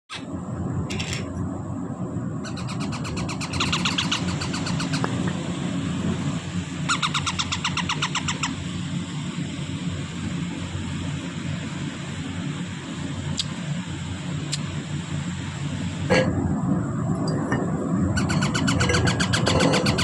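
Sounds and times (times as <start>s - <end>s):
steady low hum: 0.1s - 20.0s
parrot chicks begging chirps: 2.4s - 5.2s, 6.8s - 8.6s, 18.0s - 20.0s.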